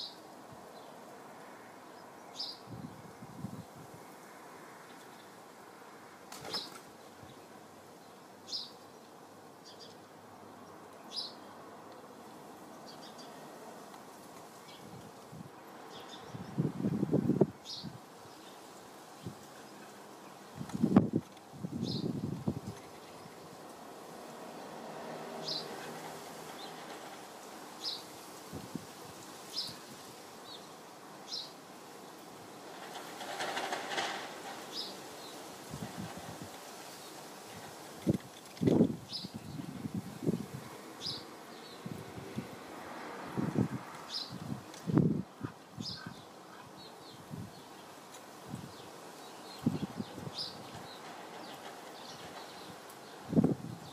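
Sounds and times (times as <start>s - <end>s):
outdoor background hiss: 0.0s - 53.9s
small birds chirping: 1.8s - 3.8s, 6.4s - 23.8s, 25.4s - 42.5s, 43.6s - 53.9s
crackly rustling: 25.4s - 30.5s, 31.6s - 40.8s, 47.6s - 53.9s
bird chirping: 45.4s - 48.0s.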